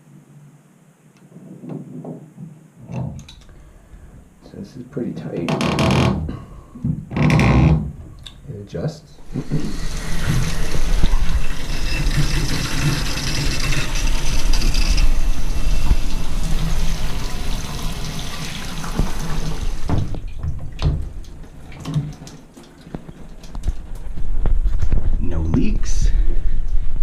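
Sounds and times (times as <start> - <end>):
water spraying from shower head: 9.3 - 19.8.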